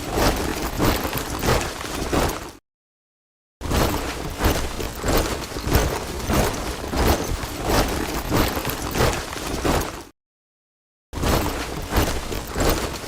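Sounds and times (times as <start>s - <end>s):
shuffle of many feet: 0.0s - 2.6s, 3.7s - 10.1s, 11.3s - 13.0s
soldiers marching in step: 4.1s - 10.1s.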